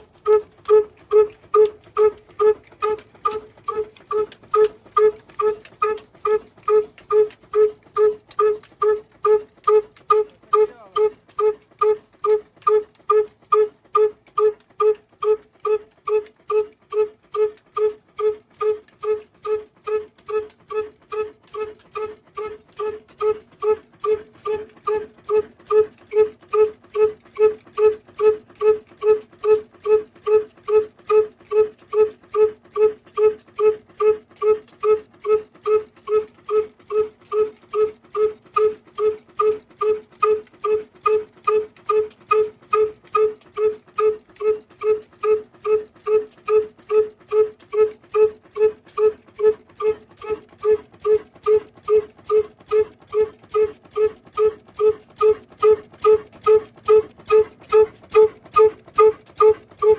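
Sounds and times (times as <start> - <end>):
diesel engine running slowly: 0.0 - 59.9.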